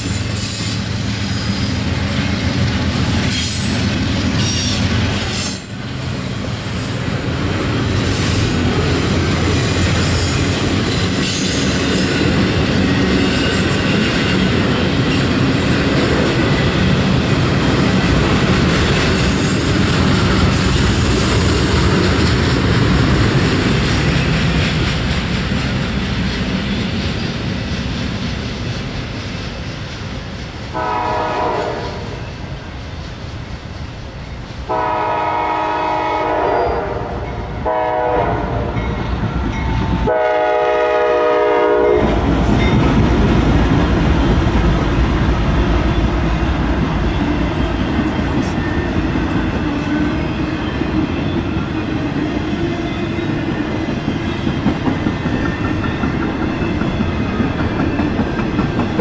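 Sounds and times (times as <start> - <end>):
train rumbling and clattering past: 0.0 - 59.0
locomotive horn blasts: 30.8 - 32.4, 34.7 - 38.9, 40.0 - 42.2.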